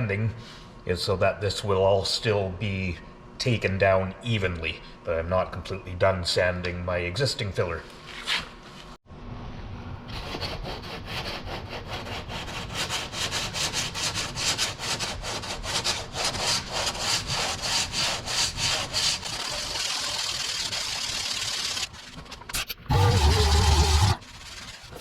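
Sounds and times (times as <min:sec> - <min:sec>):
sandpaper rasping on filler: 0:10.1 - 0:22.2, 0:22.9 - 0:25.0.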